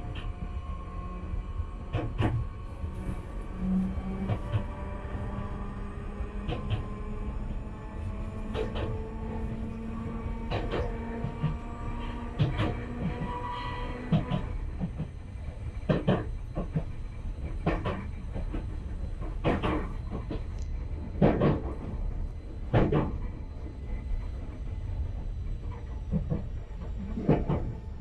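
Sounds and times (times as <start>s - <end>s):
train rumbling: 0.0s - 28.0s
heavy train clunks: 1.8s - 4.8s, 6.4s - 6.9s, 8.5s - 9.4s, 10.2s - 23.4s, 25.6s - 27.8s.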